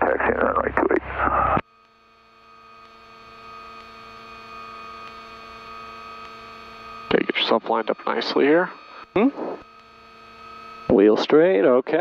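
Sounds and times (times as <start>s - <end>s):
twin propeller engines droning: 6.7s - 9.2s.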